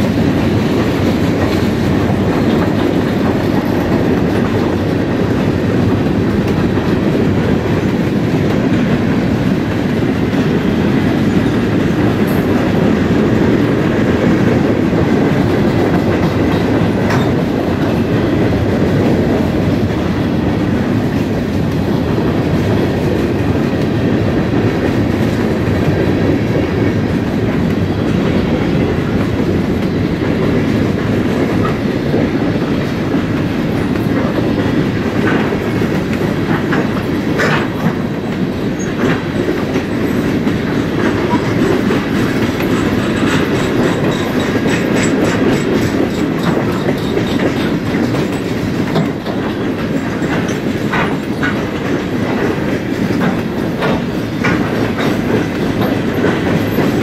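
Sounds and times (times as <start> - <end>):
steel wheels rumbling on rail: 0.0 - 57.0
wheels clicking and clanking: 27.5 - 57.0.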